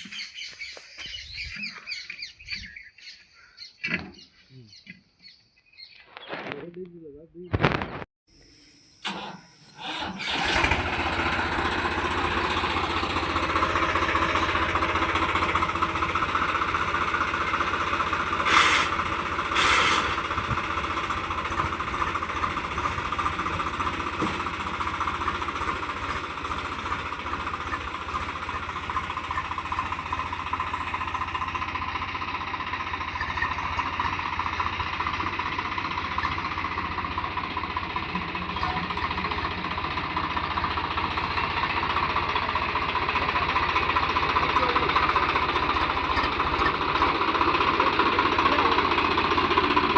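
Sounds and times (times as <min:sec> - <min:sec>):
diesel tractor engine knocking: 0:10.2 - 0:49.9.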